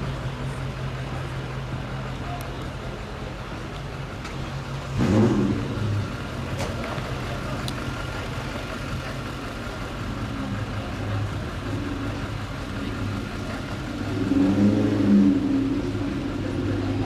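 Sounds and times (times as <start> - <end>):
car engine revving: 4.6 - 17.0.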